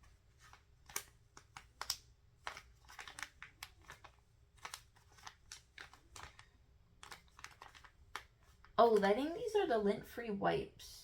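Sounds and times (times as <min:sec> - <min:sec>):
packaging crinkling and rustling: 0:00.0 - 0:08.8
small clicks and taps: 0:00.4 - 0:09.1.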